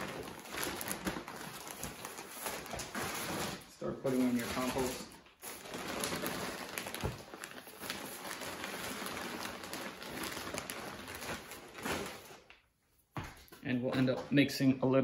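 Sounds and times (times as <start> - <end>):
compost pouring from plastic bag: 4.0 - 12.2.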